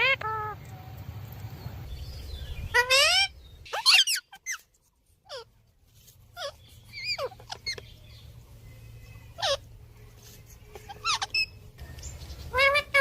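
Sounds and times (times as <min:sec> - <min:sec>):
parrot squeaky calls: 0:02.5 - 0:05.5, 0:06.3 - 0:08.0, 0:09.3 - 0:09.8, 0:10.7 - 0:11.7, 0:12.3 - 0:13.0.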